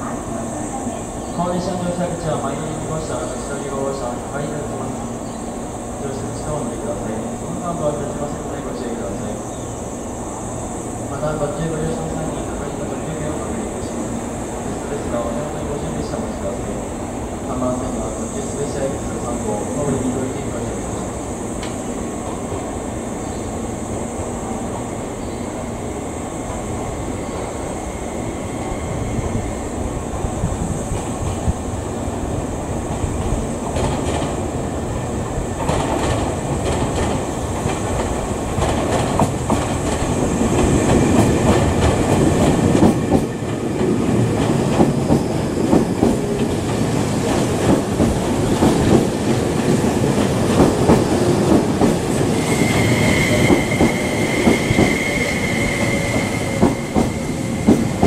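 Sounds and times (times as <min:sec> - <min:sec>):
high squeal: 0:26.6 - 0:29.8, 0:52.3 - 0:58.0.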